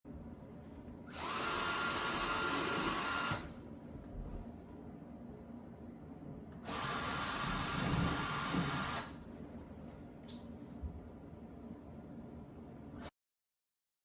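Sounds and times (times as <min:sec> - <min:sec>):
electric power tool spinning: 0:01.1 - 0:03.5.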